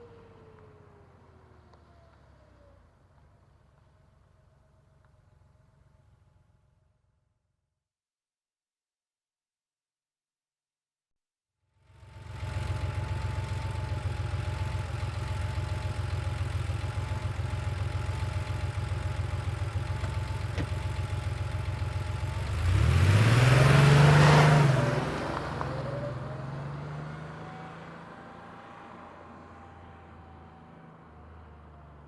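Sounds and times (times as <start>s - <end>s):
car engine idling and revving: 11.9s - 32.0s.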